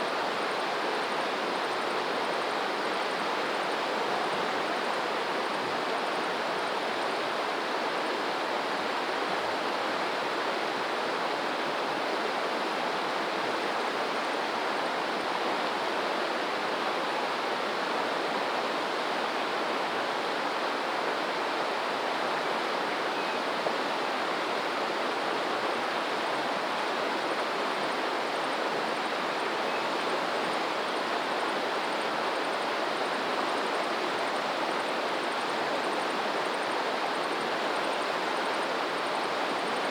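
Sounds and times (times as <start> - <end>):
stream water rushing: 0.1 - 39.9.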